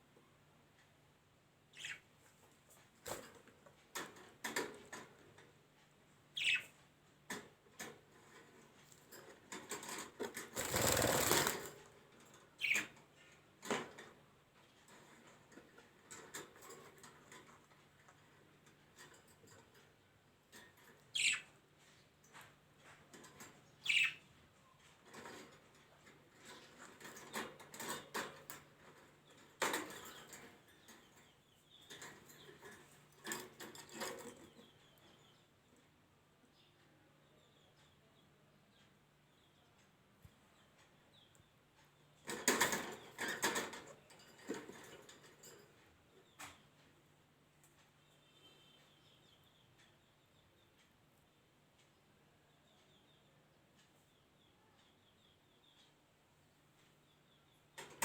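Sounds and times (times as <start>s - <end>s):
small birds chirping: 1.6s - 13.5s, 14.8s - 58.0s.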